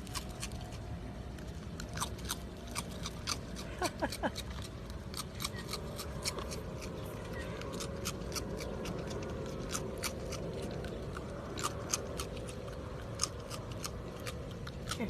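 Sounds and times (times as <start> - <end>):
animal chewing crisp food: 0.0 - 15.0.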